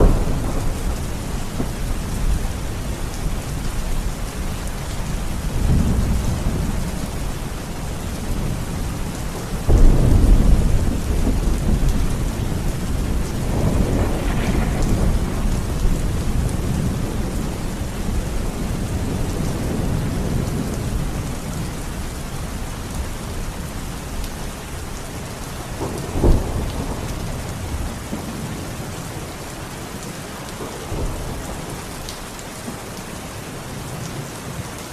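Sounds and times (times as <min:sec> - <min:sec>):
sharp thunder crack: 0:00.0 - 0:03.6, 0:09.6 - 0:20.4
loud thunderclap: 0:00.0 - 0:04.2, 0:09.6 - 0:21.1, 0:25.8 - 0:28.5
rolling thunder: 0:00.0 - 0:23.6, 0:25.7 - 0:29.1
steady rain: 0:00.0 - 0:34.9.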